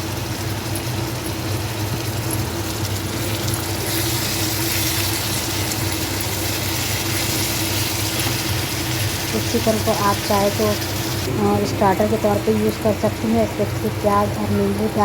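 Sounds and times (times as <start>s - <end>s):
electric motor hum: 1.7s - 15.0s.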